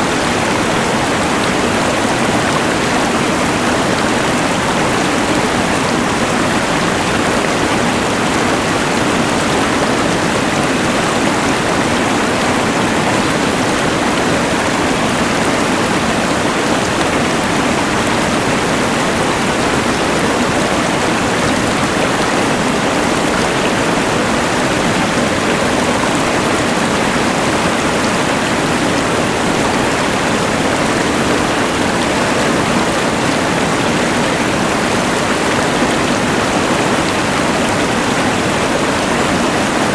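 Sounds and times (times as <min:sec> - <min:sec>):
rushing river: 0:00.0 - 0:39.9.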